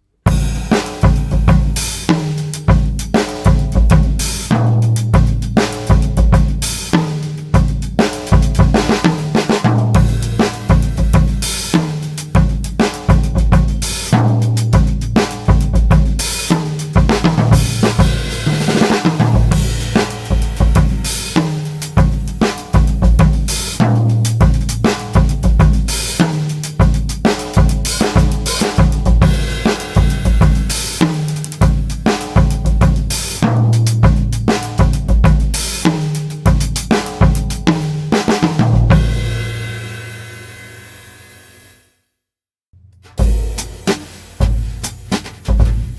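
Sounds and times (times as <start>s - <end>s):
drum kit groove: 0.2s - 40.7s, 42.8s - 45.9s.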